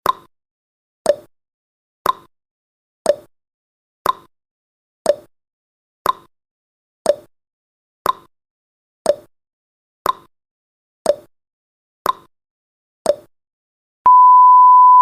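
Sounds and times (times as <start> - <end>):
clock ticking tick-tock: 1.1 - 1.3, 2.0 - 2.3, 3.1 - 3.3, 4.1 - 4.3, 5.1 - 5.3, 6.0 - 6.3, 7.1 - 7.3, 8.1 - 8.3, 9.1 - 9.3, 10.0 - 10.3, 11.1 - 11.3, 12.1 - 12.3
loud steady beep: 14.1 - 15.0.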